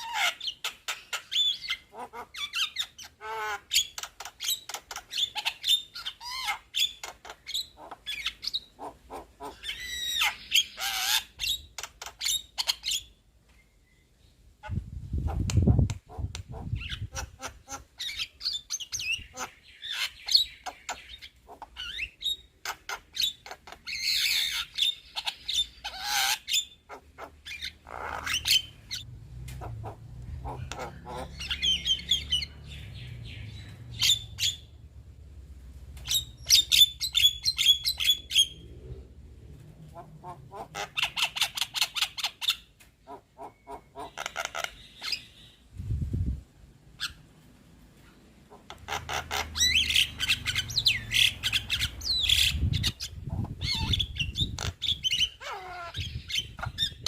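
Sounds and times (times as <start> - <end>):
myna chattering and squawking: 14.6 - 32.5, 39.8 - 45.2, 48.5 - 57.0.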